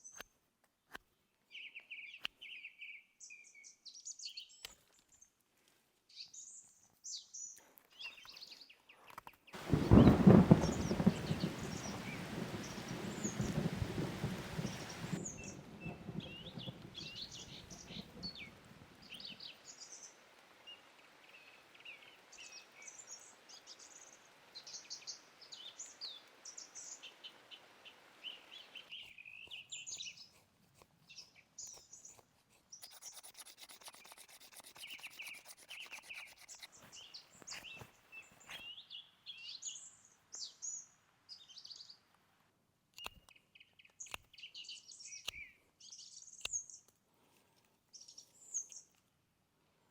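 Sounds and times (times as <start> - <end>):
thunder rumble: 9.6 - 19.1
rain hissing: 9.6 - 24.8.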